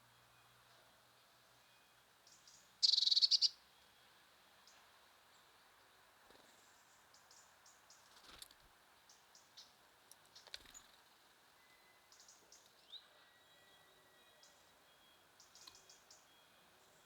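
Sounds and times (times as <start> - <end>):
small songbirds chirping: 2.2 - 3.6, 6.4 - 8.2, 9.0 - 17.0.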